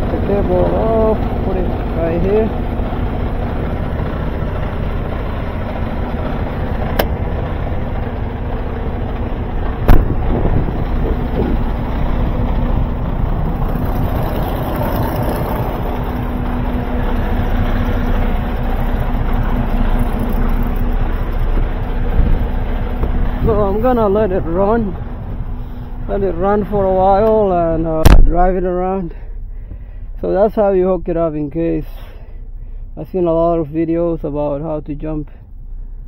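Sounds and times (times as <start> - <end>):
diesel truck engine idling: 0.0 - 36.0
loud sharp clank: 9.8 - 10.6.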